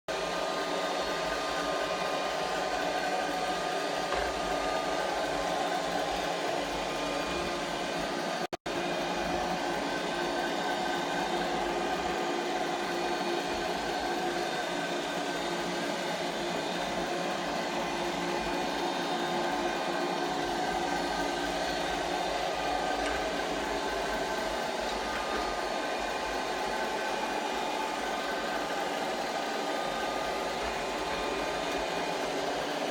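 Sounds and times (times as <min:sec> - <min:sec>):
robot vacuum motor whir: 0:18.8 - 0:32.9.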